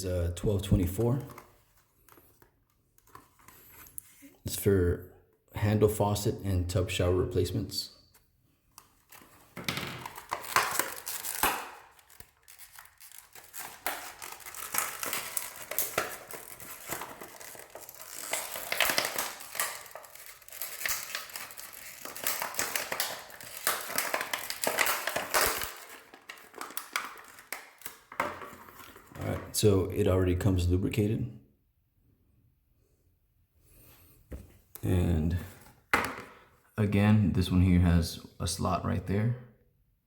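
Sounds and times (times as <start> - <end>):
plastic packaging crinkling: 8.8 - 29.4.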